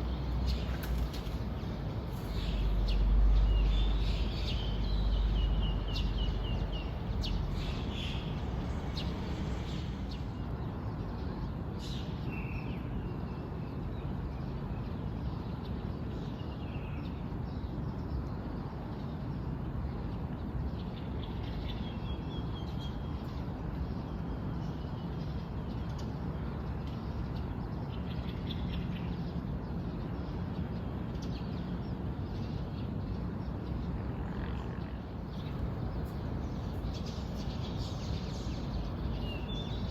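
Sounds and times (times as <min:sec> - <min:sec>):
birds chirping: 0:00.0 - 0:10.4, 0:35.2 - 0:39.9
low background rumble: 0:35.1 - 0:39.9.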